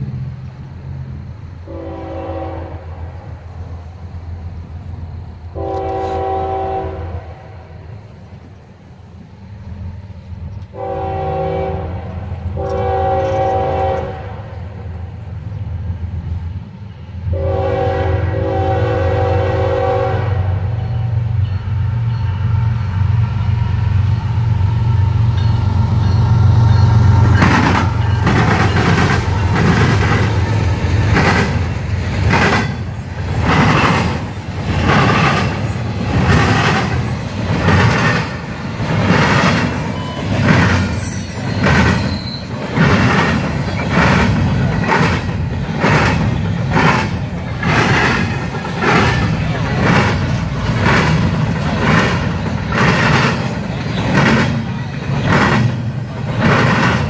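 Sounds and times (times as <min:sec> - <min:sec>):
locomotive air horn blasts: 0:01.7 - 0:03.2, 0:05.5 - 0:07.7, 0:10.7 - 0:14.6, 0:17.3 - 0:21.1
train wheels clattering on rails: 0:24.0 - 0:57.0.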